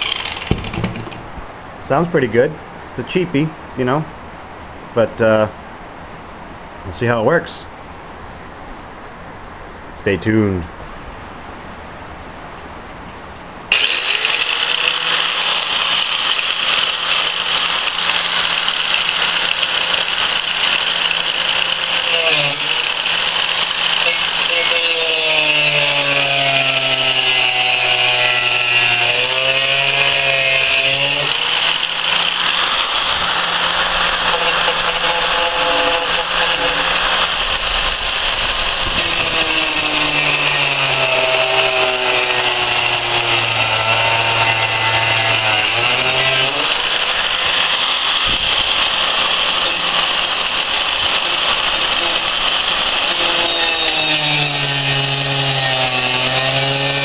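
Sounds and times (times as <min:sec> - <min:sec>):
die grinder cutting steel: 0:00.0 - 0:01.3, 0:13.7 - 0:57.0.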